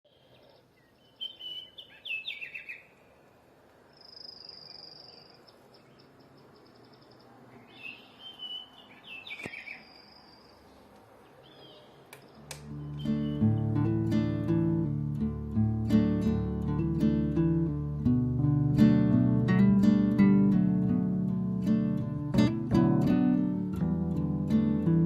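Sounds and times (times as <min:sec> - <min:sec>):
small birds chirping: 0:00.1 - 0:14.6.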